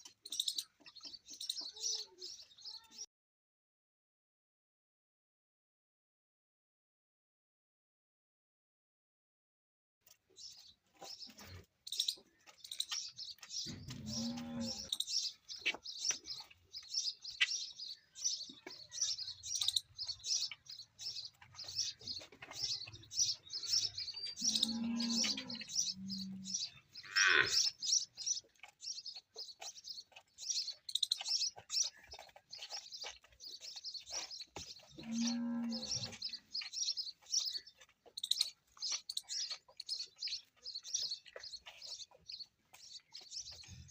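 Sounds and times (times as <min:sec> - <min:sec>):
small birds chirping: 0:00.0 - 0:03.1, 0:10.0 - 0:43.9
calf mooing: 0:13.7 - 0:14.9, 0:23.7 - 0:27.7, 0:35.0 - 0:36.3.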